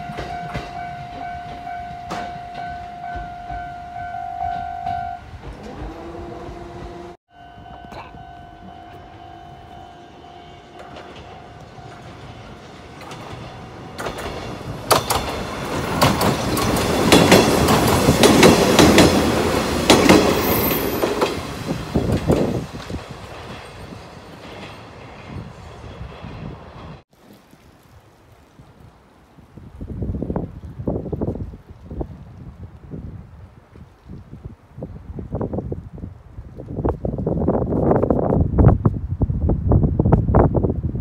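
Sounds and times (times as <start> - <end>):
wheels clacking over rail joints: 0.0 - 7.1, 10.4 - 27.0
electric train passing: 0.0 - 27.0.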